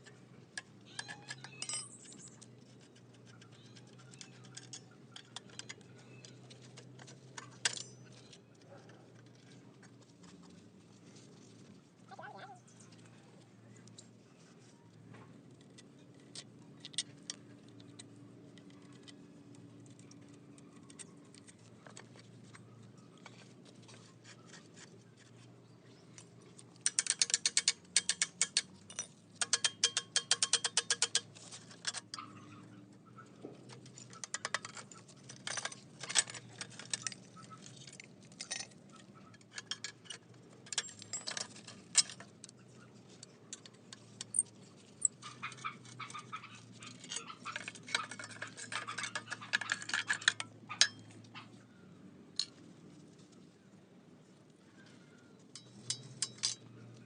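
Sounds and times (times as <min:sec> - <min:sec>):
hand tools clicking on metal: 0:00.6 - 0:08.4, 0:26.7 - 0:32.4, 0:33.7 - 0:42.6, 0:43.2 - 0:51.3, 0:55.6 - 0:56.7.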